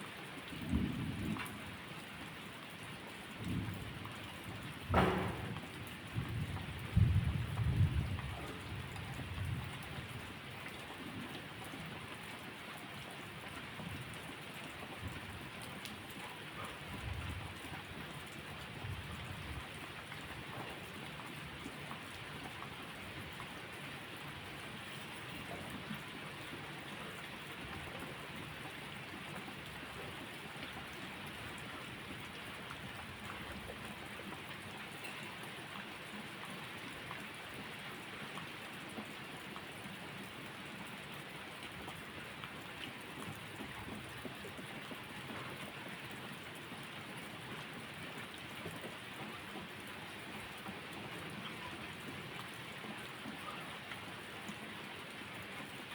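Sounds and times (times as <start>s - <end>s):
heavy rain falling: 0.1s - 55.9s
distant thunder rumbles: 4.8s - 8.1s.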